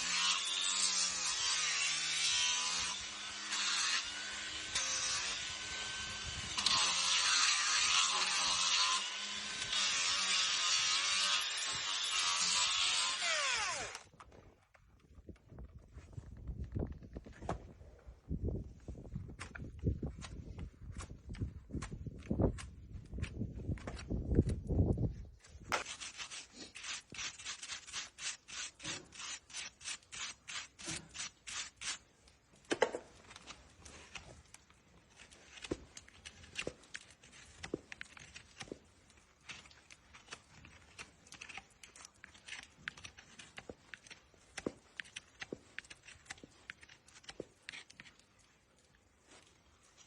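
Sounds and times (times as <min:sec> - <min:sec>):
rasp scraping hoof: 0:25.5 - 0:48.6.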